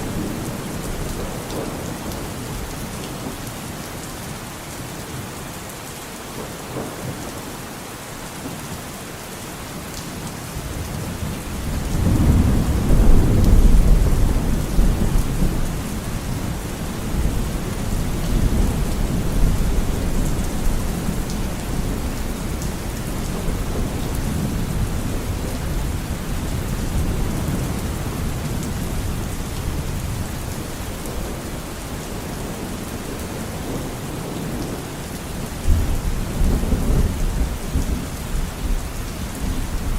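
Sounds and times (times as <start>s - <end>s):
steady rain: 0.0s - 39.9s
thunder rumbling: 10.7s - 34.8s, 35.7s - 39.9s.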